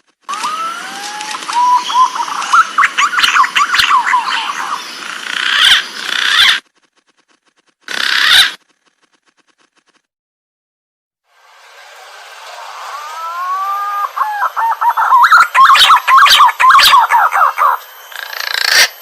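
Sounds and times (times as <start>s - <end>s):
pigeon calling: 0.3s - 9.0s, 12.9s - 19.0s.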